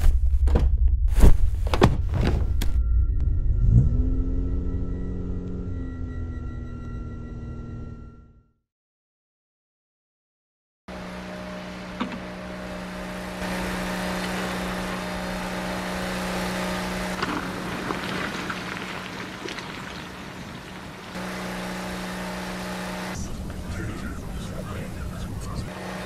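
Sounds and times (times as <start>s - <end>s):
industrial noise: 10.9s - 26.0s
machinery hum: 10.9s - 26.0s.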